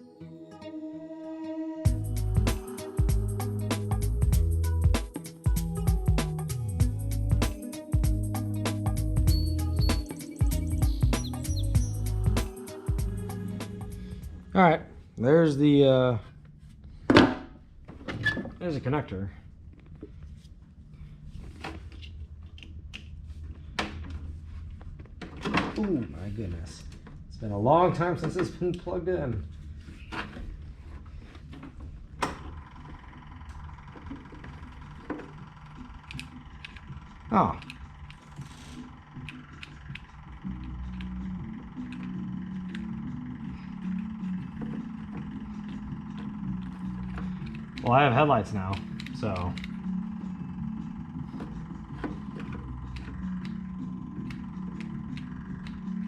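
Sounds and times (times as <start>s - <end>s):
low steady hum: 9.1s - 56.0s
steady high tone: 9.3s - 14.6s
tractor engine idling: 31.8s - 56.0s.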